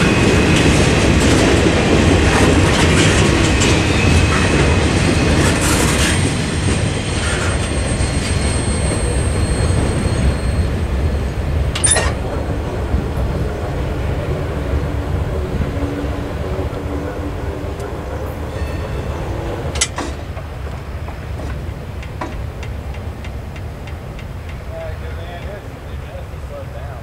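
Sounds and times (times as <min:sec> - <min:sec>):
freight train rumbling: 0:00.0 - 0:27.0
wheels clicking over rail joints: 0:00.6 - 0:26.7
high thin wheel squeal: 0:07.1 - 0:12.2
sharp metal clank: 0:11.8 - 0:12.2.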